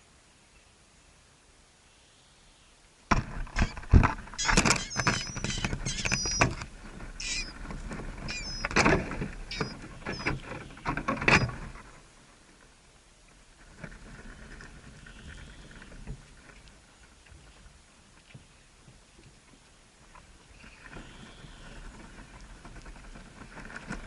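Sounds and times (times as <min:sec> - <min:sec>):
birds knocking and scrabbling: 0:03.1 - 0:11.9, 0:20.6 - 0:24.0
small birds chirping: 0:03.6 - 0:06.6, 0:07.2 - 0:07.6, 0:08.2 - 0:11.5.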